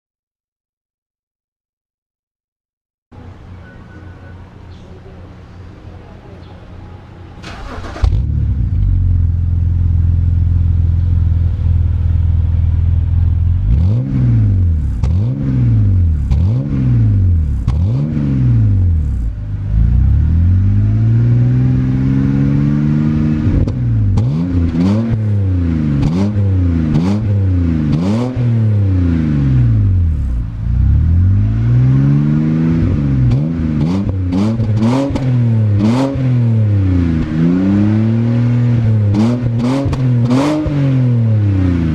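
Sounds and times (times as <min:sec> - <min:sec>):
car engine idling and revving: 0:07.4 - 0:41.9.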